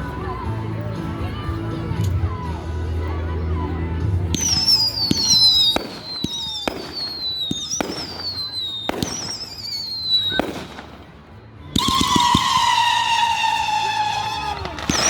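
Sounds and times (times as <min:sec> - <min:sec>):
firework bangs: 0:04.4 - 0:11.2, 0:11.8 - 0:15.0
firework whistle falling: 0:11.8 - 0:15.0.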